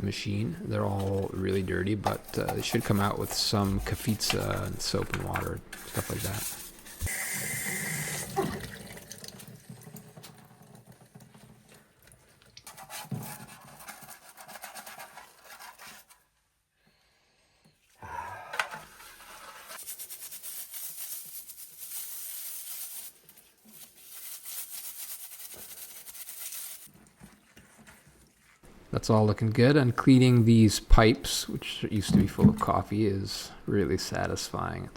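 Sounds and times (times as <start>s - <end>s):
scrubbing and rubbing: 0.3s - 7.1s, 12.6s - 16.2s, 18.9s - 28.7s
tap water running into sink: 7.1s - 12.1s.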